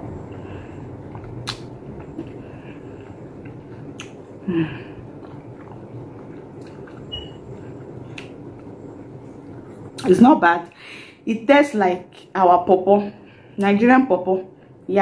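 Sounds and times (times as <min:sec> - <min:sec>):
soft chewing: 0:00.4 - 0:10.1
mouth clicks: 0:01.2 - 0:01.7
person humming: 0:04.4 - 0:05.0.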